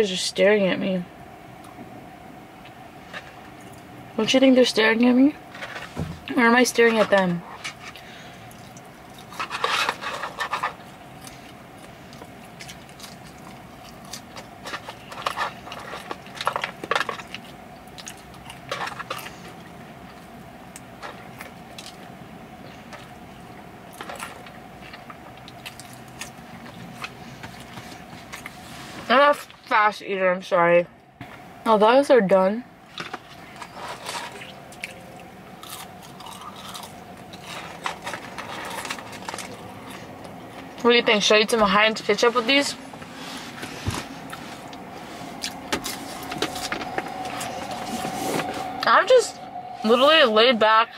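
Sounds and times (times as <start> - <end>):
faint steady hum: 0.0 - 50.9
biting and chewing crisp food: 6.9 - 28.6, 32.9 - 40.8.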